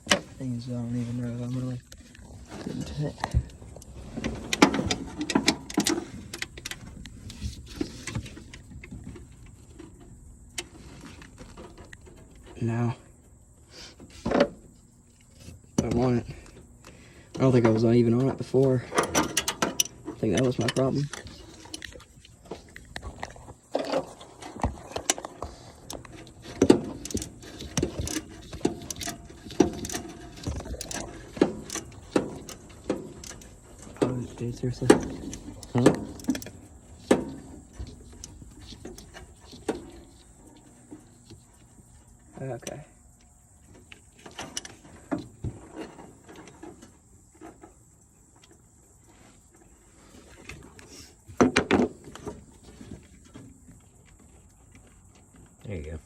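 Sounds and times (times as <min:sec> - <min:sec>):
metal tools clinking on engine: 0:17.2 - 0:40.8.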